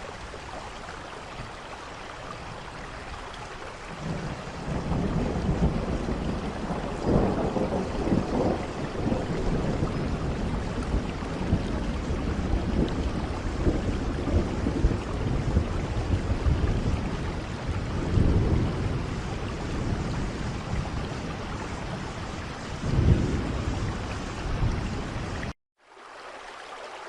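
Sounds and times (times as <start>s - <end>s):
heavy rain falling: 0.0s - 25.6s
low thunder rumbles: 3.9s - 25.5s.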